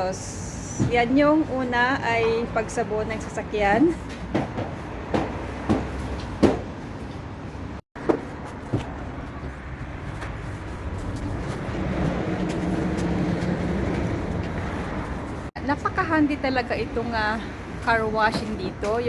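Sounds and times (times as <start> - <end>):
sharp knocks and clacks: 4.1 - 6.7.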